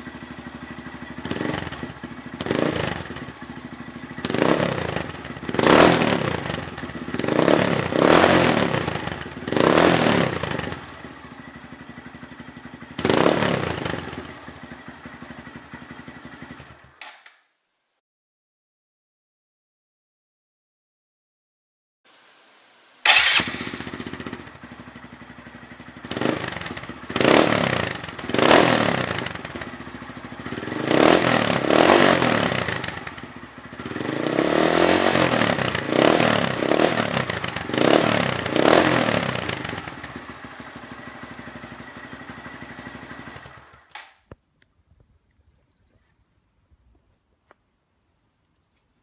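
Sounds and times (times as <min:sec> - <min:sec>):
motorcycle engine idling and revving: 0:00.0 - 0:17.2, 0:23.0 - 0:44.4, 0:45.5 - 0:46.1.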